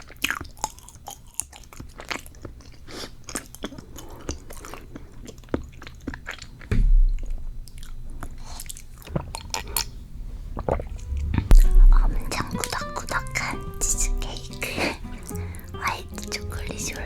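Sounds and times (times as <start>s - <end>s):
chewing with wet mouth clicks: 0.0s - 6.7s
low thump: 6.7s - 7.7s, 9.1s - 15.0s.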